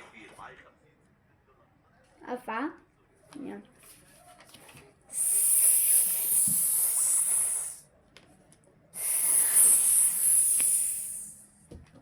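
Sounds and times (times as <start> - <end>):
person hissing like a snake: 5.1 - 7.8, 9.0 - 11.5.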